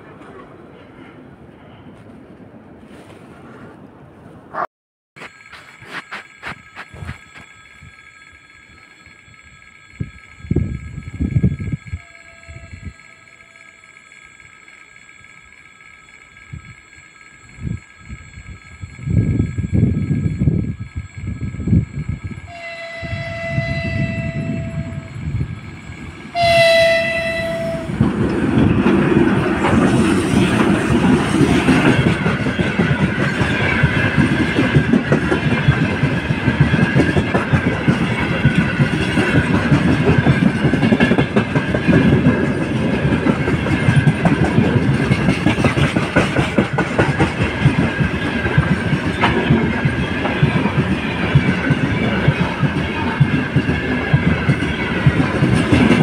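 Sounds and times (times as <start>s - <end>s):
freight train rumble: 0.0s - 4.6s, 5.3s - 56.0s
wheels clacking over rail joints: 5.3s - 56.0s
locomotive horn blasts: 11.8s - 13.6s, 22.5s - 25.4s, 26.3s - 28.0s.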